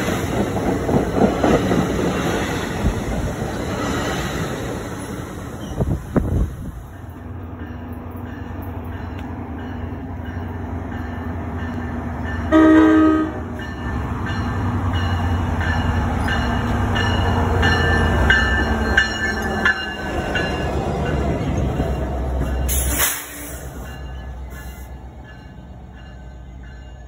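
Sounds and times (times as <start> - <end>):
passenger train rumble: 0.0 - 27.0
train horn blast: 12.5 - 13.5.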